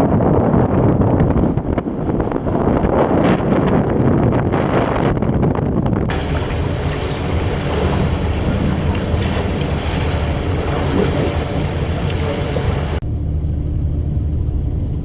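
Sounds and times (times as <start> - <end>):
wind on microphone: 0.0 - 13.0
rushing water: 6.1 - 13.0
low engine hum: 6.1 - 15.0.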